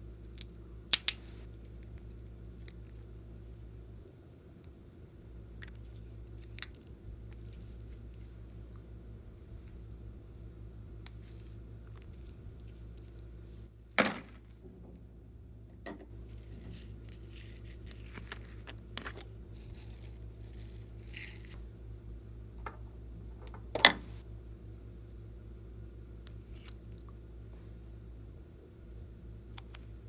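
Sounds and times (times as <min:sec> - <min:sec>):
steady low hum: 0:00.0 - 0:30.0
soft crinkling: 0:16.1 - 0:21.6
scraping of small objects: 0:16.2 - 0:21.6.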